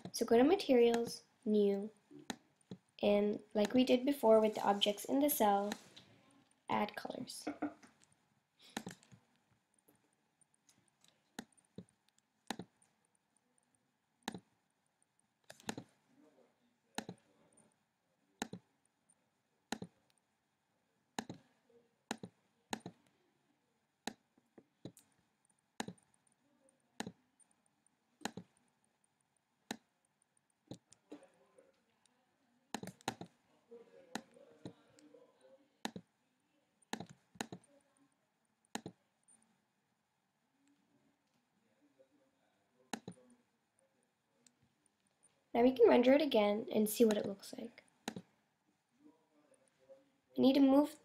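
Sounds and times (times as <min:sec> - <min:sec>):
computer mouse clicking: 0:08.0 - 0:09.2, 0:10.4 - 0:12.9, 0:14.2 - 0:14.5, 0:15.4 - 0:15.9, 0:17.0 - 0:17.2, 0:18.4 - 0:18.6, 0:19.7 - 0:20.2, 0:21.2 - 0:21.5, 0:22.1 - 0:23.1, 0:25.8 - 0:26.2, 0:27.0 - 0:27.5, 0:28.2 - 0:28.6, 0:32.8 - 0:33.4, 0:35.8 - 0:36.1, 0:36.9 - 0:37.7, 0:38.7 - 0:39.4, 0:42.9 - 0:43.2, 0:48.0 - 0:48.3.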